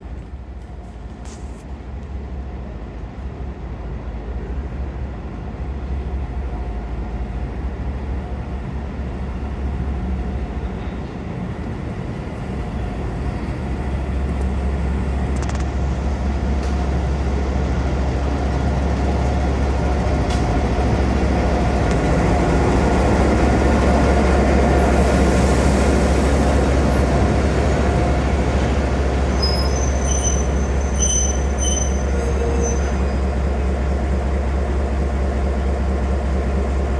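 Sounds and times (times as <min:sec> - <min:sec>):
train rumbling: 0:00.0 - 0:36.9
train brakes squealing: 0:24.8 - 0:33.5.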